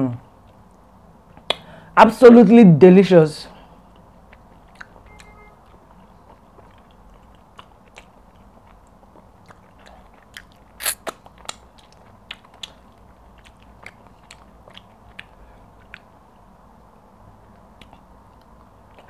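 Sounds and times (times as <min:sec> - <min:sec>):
chewing with wet mouth smacks: 0:03.9 - 0:16.6, 0:17.5 - 0:19.0
fingers licked: 0:06.6 - 0:16.2.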